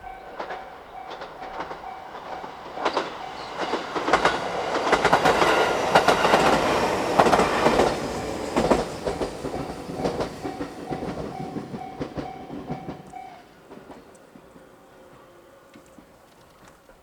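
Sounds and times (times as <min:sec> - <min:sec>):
level crossing warning bell: 0:00.0 - 0:06.5, 0:08.6 - 0:13.6
train wheels clicking over rail joints: 0:00.0 - 0:17.0.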